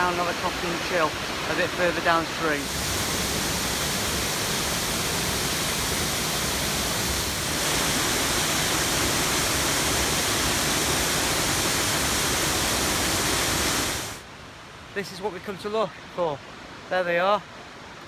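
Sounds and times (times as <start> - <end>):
waterfall rushing: 0.0 - 14.3.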